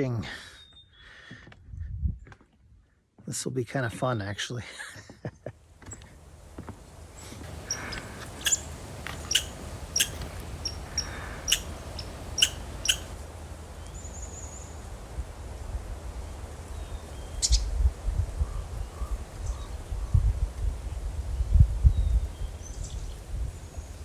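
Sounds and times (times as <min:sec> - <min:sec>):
wind rumble on microphone: 0:01.5 - 0:02.9, 0:06.0 - 0:24.0
small birds calling: 0:07.0 - 0:14.8, 0:16.7 - 0:17.7
bird trill: 0:07.6 - 0:13.2.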